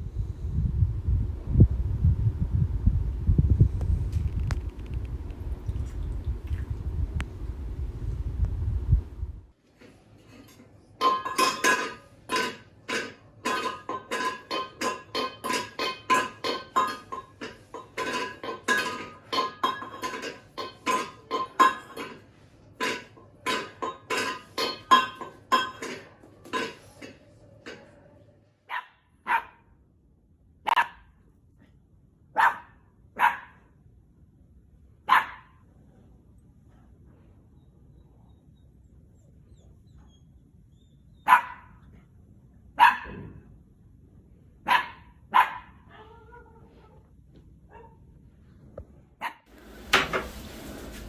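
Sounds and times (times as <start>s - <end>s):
dog barking: 28.7s - 29.7s, 30.7s - 31.1s, 32.4s - 33.7s, 35.1s - 35.6s, 41.2s - 41.8s, 42.8s - 43.3s, 44.6s - 46.4s, 47.7s - 48.0s, 49.2s - 49.4s.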